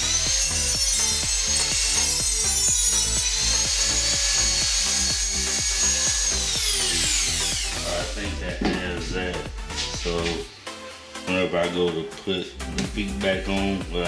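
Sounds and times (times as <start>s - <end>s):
rotary tool cutting wood: 0.0s - 8.4s
background music with beat: 0.0s - 14.0s.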